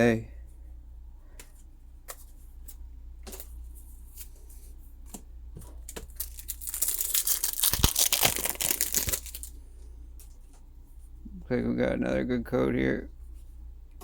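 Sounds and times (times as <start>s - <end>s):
foil wrapper tearing: 5.8s - 9.5s.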